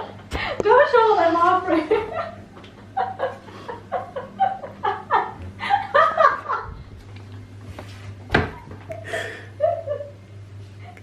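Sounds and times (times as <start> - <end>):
people laughing: 1.7 - 6.8, 8.9 - 10.2.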